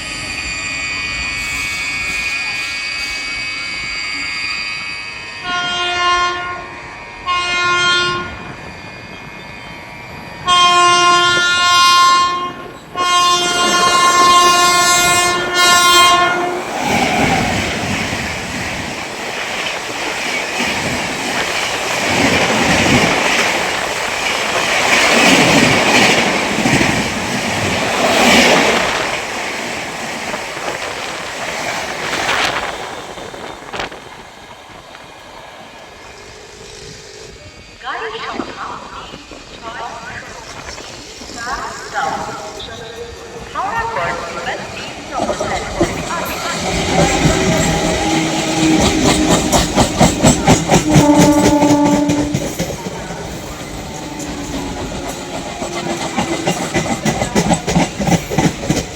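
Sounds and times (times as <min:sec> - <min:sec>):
train horn blasts: 0:05.1 - 0:08.6, 0:10.4 - 0:16.7, 0:46.2 - 0:52.6
train wheels clattering over rail joints: 0:42.3 - 0:58.9.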